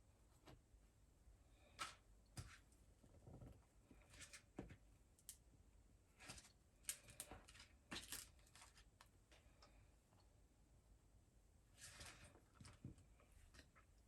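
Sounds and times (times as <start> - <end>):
small objects clicking and rustling: 6.2 - 9.1.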